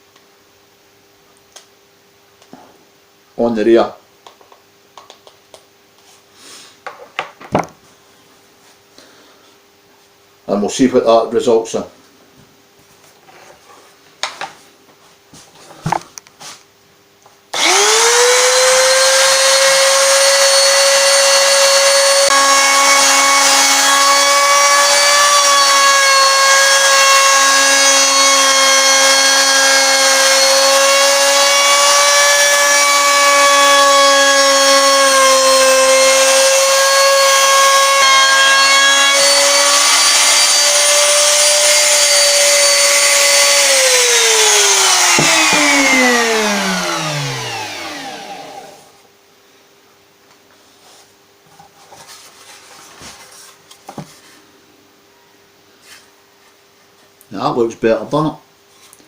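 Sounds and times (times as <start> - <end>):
wood router whining: 17.5 - 49.0.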